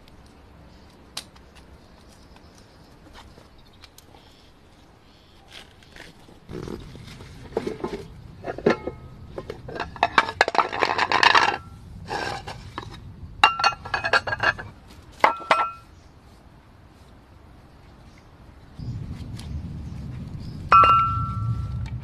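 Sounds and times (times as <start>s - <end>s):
cookware and utensils clinking: 15.3s - 15.8s.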